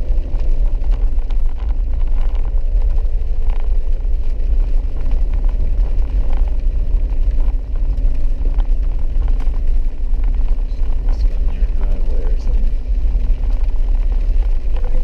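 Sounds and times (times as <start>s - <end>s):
tyre and road rumble: 0.0s - 15.0s
vehicle engine running: 0.0s - 15.0s.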